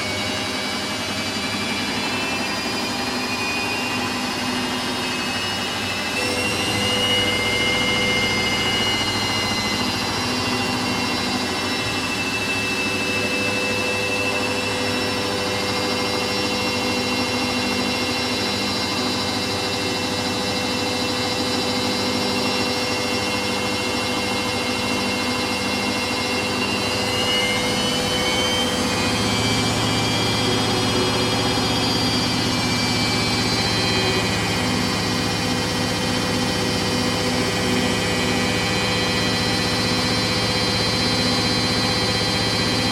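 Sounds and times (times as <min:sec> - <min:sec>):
washing machine motor whining: 0:00.0 - 0:42.9
low hum: 0:05.7 - 0:42.8.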